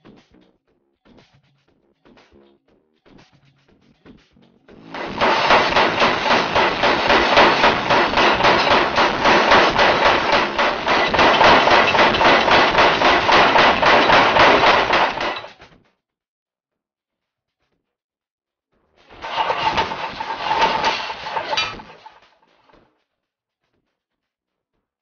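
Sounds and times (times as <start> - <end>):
forging hammer striking steel: 4.9 - 15.5, 19.2 - 22.2.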